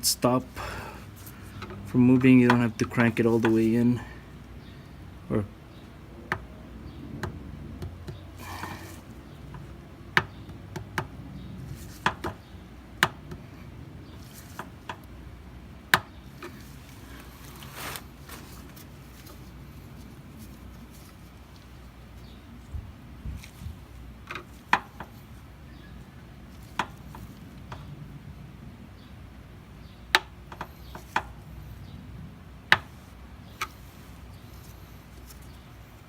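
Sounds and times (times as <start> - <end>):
hissing rustles: 16.2 - 27.8, 32.9 - 36.0.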